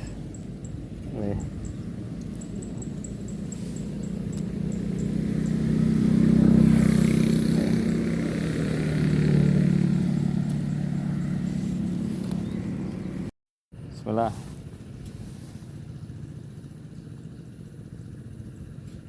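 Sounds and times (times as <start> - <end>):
traffic driving past: 0.0 - 13.3.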